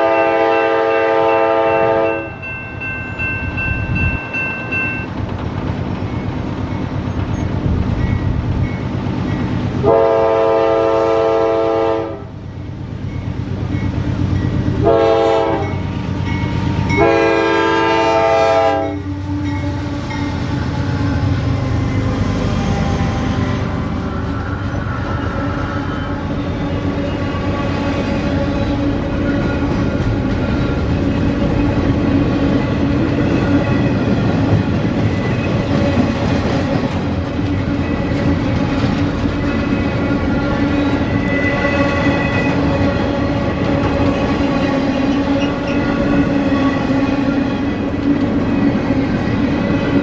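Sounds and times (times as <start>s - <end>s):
train air horn blasts: 0.0s - 2.5s, 9.8s - 12.4s, 14.8s - 15.9s, 16.7s - 26.3s
train rumble and clatter: 0.0s - 50.0s.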